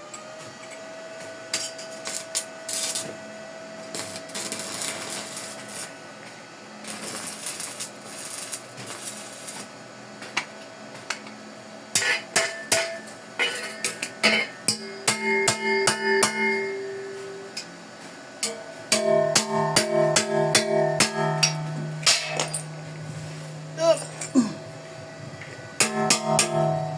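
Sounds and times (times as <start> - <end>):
welding arc crackling: 2.0 - 3.1, 3.9 - 6.0, 6.8 - 9.7
steady whine: 11.2 - 26.9
sharp metal taps: 18.4 - 22.8.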